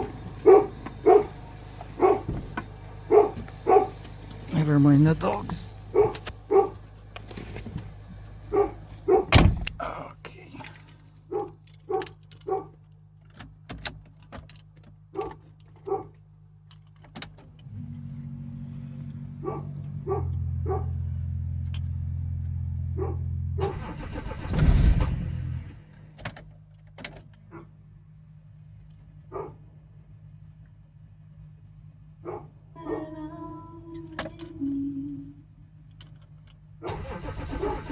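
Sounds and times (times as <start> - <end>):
dogs barking: 0.0 - 4.2, 5.6 - 6.9, 8.4 - 9.4, 11.2 - 12.8, 15.1 - 16.2, 19.3 - 21.2, 22.9 - 24.1, 27.5 - 27.8, 29.3 - 29.7, 32.2 - 33.1
diesel engine cold start: 0.0 - 6.5, 23.0 - 26.2, 36.8 - 37.9
low engine hum: 0.0 - 11.5, 17.4 - 26.2.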